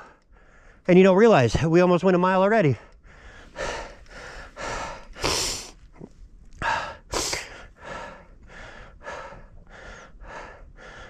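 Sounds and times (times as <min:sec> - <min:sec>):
person breathing hard: 0:00.0 - 0:00.9, 0:02.8 - 0:05.8, 0:06.6 - 0:11.0.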